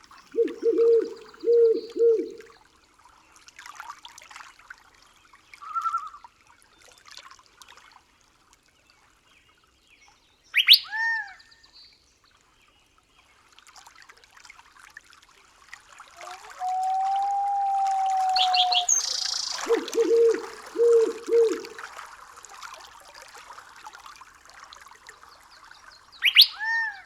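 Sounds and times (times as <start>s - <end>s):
faint crackly trickling: 0.0s - 2.6s, 15.5s - 26.4s
bird trill: 0.4s - 2.4s, 16.6s - 21.7s, 26.2s - 26.7s
loud sharp bird call: 16.2s - 21.7s, 26.2s - 26.8s.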